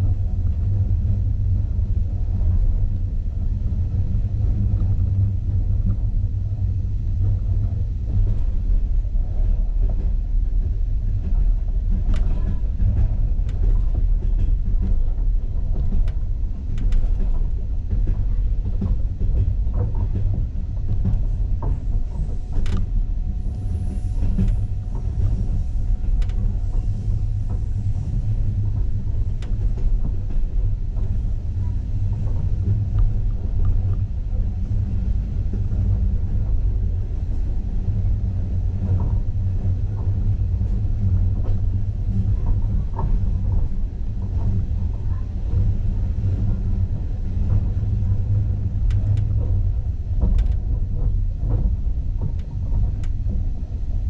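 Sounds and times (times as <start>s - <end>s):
train rumbling at speed: 0.0s - 54.0s.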